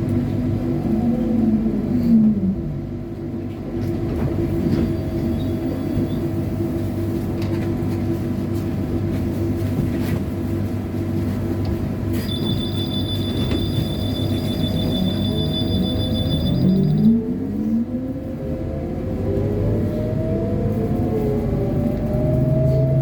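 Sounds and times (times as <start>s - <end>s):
trolleybus low rumble and hum: 0.0s - 23.0s
high-pitched electronic tone: 12.2s - 17.2s.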